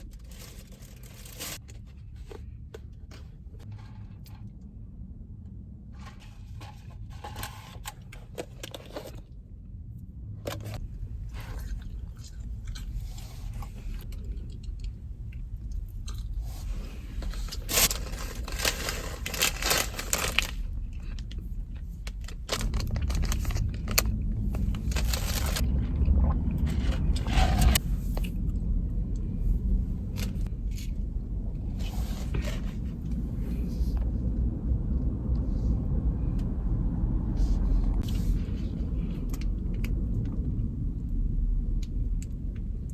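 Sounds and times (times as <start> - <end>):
low rumble: 0.0 - 42.9.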